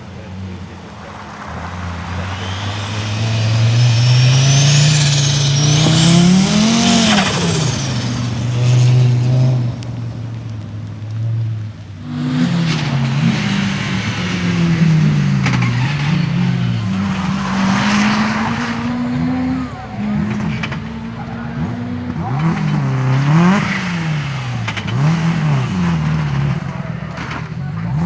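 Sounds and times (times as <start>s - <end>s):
high turbo whine: 0.0s - 28.0s
rally car engine accelerating: 0.0s - 28.0s.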